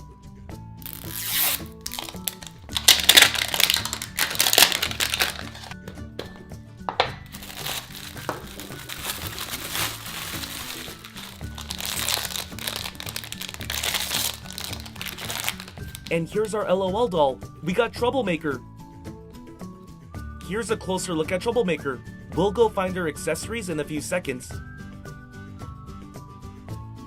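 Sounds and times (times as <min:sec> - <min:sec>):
background music: 0:00.0 - 0:27.0
plastic wrapping crinkling: 0:00.8 - 0:06.0, 0:06.9 - 0:16.2.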